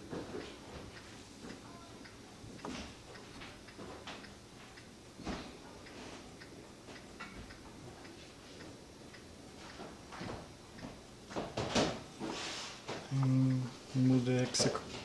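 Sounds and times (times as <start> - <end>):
mechanical clock ticking: 0.9 - 5.0, 5.8 - 11.0.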